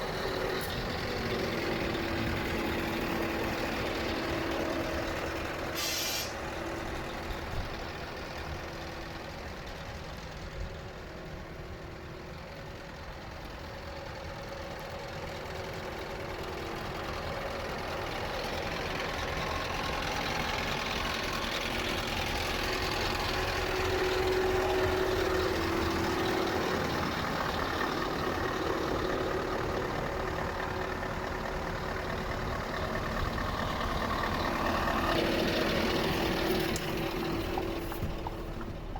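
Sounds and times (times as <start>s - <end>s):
truck diesel engine running: 0.0s - 38.9s.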